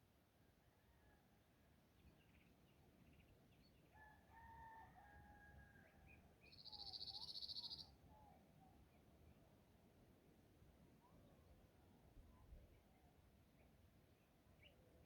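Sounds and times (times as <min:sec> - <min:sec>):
distant rooster crowing: 0:04.0 - 0:06.0.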